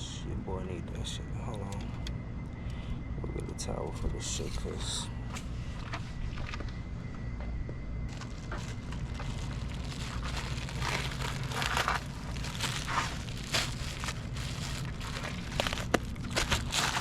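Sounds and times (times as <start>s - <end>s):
steady low rumble: 0.0s - 17.0s
rustling and handling noises: 4.3s - 6.9s, 8.1s - 17.0s
scrapes and crinkles: 5.3s - 6.8s, 8.1s - 17.0s.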